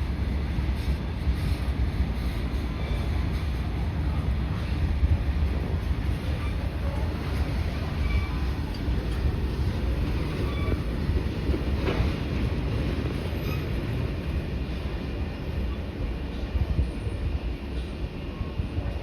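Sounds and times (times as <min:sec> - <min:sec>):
train wheels rumbling on track: 0:00.0 - 0:19.0
faint short squeaks: 0:07.8 - 0:08.6, 0:10.2 - 0:10.9.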